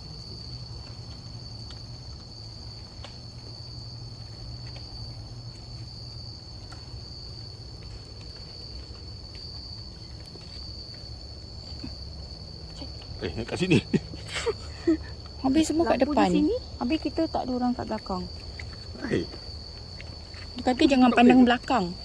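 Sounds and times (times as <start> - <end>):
night insects chirring: 0.0 - 22.0
faint ticks: 2.9 - 3.6.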